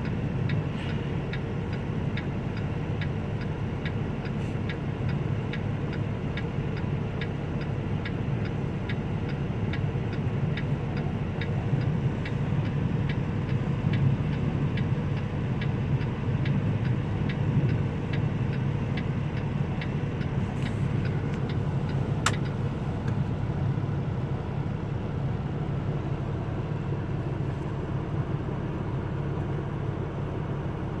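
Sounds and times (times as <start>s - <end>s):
regular ticking: 0.0s - 22.7s
car road and wind noise: 0.0s - 31.0s
sharp click: 22.2s - 22.6s.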